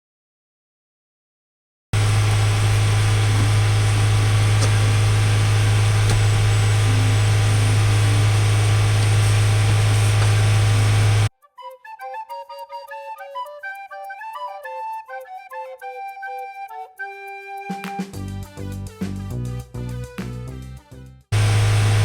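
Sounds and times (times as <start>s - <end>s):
car engine idling: 2.0s - 11.3s, 21.4s - 22.0s.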